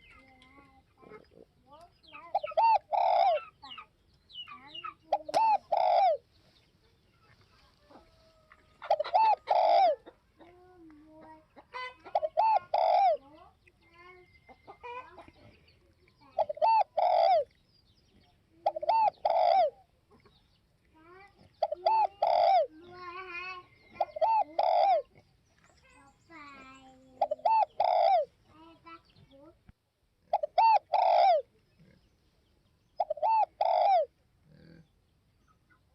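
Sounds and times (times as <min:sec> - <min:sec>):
birds chirping faintly: 0:00.0 - 0:35.9
dove cooing: 0:01.0 - 0:03.9, 0:04.6 - 0:06.3, 0:07.8 - 0:13.4, 0:16.2 - 0:17.5, 0:18.5 - 0:20.2, 0:21.5 - 0:25.2, 0:26.6 - 0:28.3, 0:30.2 - 0:31.9, 0:33.0 - 0:34.8.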